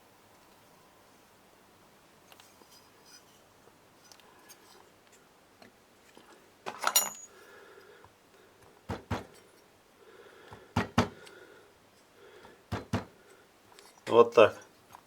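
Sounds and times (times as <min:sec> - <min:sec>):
metal tool clinking: 0:06.7 - 0:07.4
tapping knocks: 0:10.8 - 0:11.2, 0:12.7 - 0:13.1.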